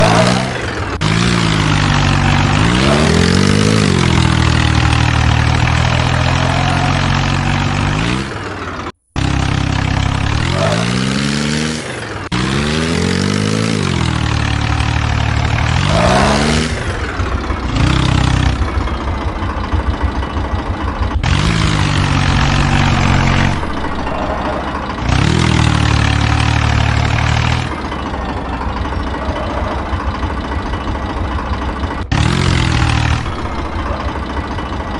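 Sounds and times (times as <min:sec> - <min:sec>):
tractor engine idling: 0:00.0 - 0:34.9
tractor engine revving: 0:00.0 - 0:34.9.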